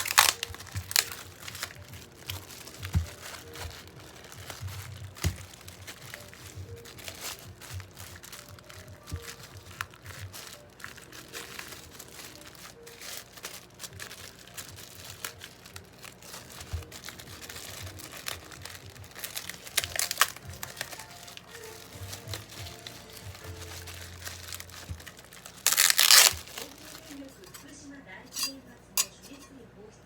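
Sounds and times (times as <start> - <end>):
packaging crinkling and rustling: 0.0 - 27.7
quiet background music: 0.0 - 30.0.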